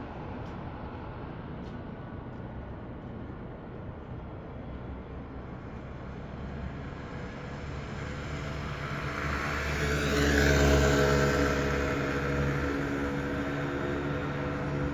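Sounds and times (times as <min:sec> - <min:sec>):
bus driving past: 0:06.7 - 0:14.9.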